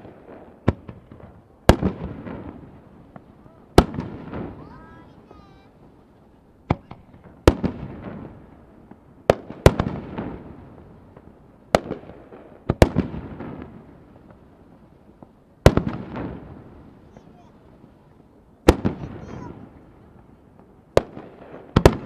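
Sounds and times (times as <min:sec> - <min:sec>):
rolling echo: 0:00.0 - 0:12.2.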